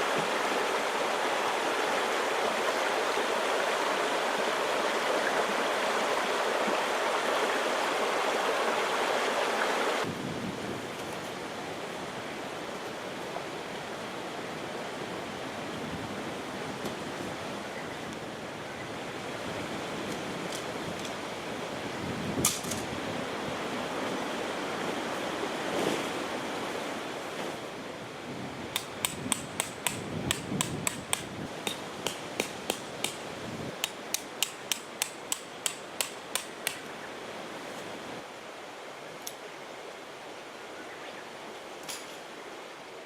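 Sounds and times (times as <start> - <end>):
sharp evenly spaced taps: 28.8 - 33.2, 33.8 - 36.9.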